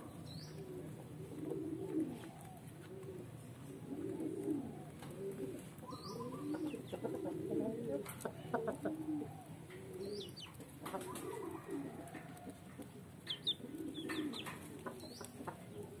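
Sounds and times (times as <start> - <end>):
low cooing calls: 0.0 - 16.0
wings fluttering: 10.6 - 11.6.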